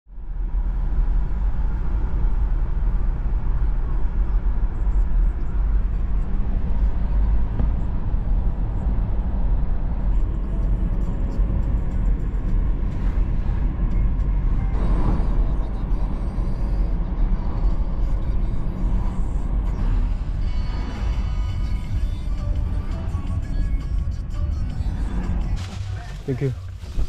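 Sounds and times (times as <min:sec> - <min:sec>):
vehicle rumble: 0:00.1 - 0:27.0.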